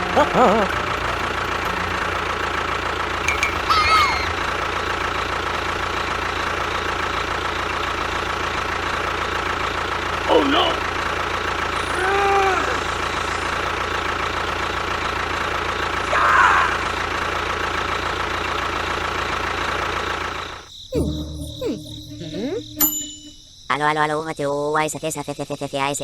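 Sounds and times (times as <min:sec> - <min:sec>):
quiet sliding tones: 0:00.0 - 0:03.6
small motor humming: 0:00.0 - 0:05.1.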